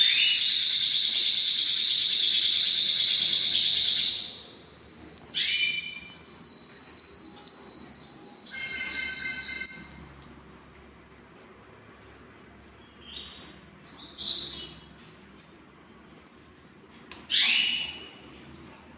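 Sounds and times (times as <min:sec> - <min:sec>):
canary singing: 0:00.0 - 0:10.2, 0:12.8 - 0:14.9, 0:17.3 - 0:18.2.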